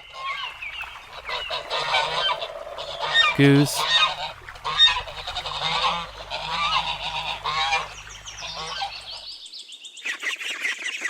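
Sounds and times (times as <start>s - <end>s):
geese honking: 0.2s - 9.2s
ducks quacking: 1.0s - 9.2s.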